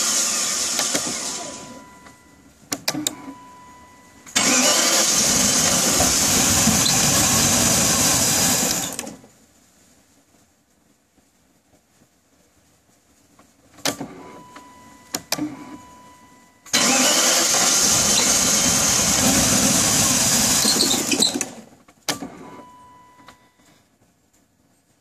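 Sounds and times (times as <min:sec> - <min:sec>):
starter motor cranking engine: 0:00.0 - 0:01.8, 0:04.3 - 0:09.2, 0:16.7 - 0:22.4
steady warning beep: 0:01.5 - 0:04.4, 0:14.4 - 0:16.7, 0:22.5 - 0:23.7.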